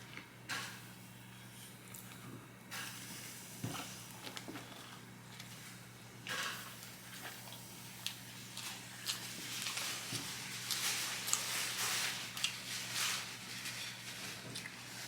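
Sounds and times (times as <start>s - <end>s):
faint electrical hum: 0.0s - 15.0s
person chewing food: 6.3s - 11.6s, 12.3s - 12.6s.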